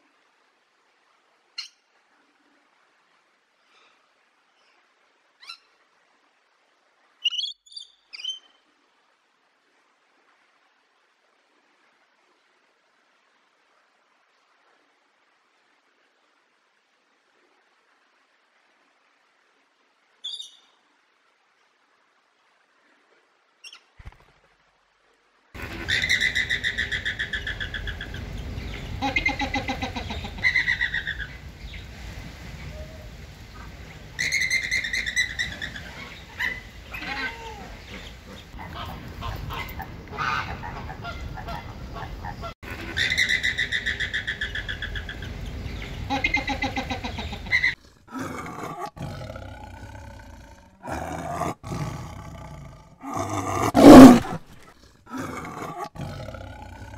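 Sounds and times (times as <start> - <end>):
flamingos calling: 25.6 - 31.6, 33.5 - 47.8
hum of other birds: 25.6 - 39.6
big cat calls: 35.0 - 40.5, 47.6 - 56.9.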